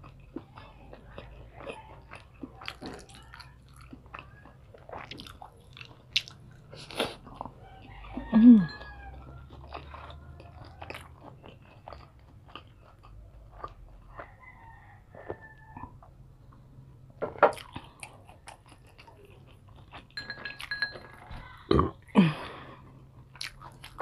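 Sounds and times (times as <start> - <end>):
person chewing with mouth clicks: 0.0 - 14.6, 17.4 - 20.8, 22.9 - 24.0.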